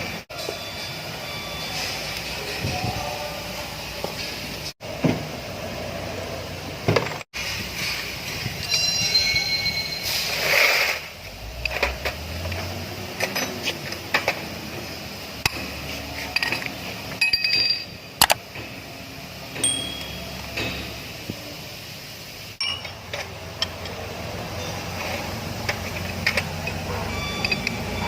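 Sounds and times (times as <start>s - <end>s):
metal parts and tools clinking: 11.5s - 14.4s, 15.4s - 18.4s, 19.6s - 21.0s, 22.6s - 28.0s
ringing metal strikes: 19.6s - 21.0s, 22.6s - 23.1s.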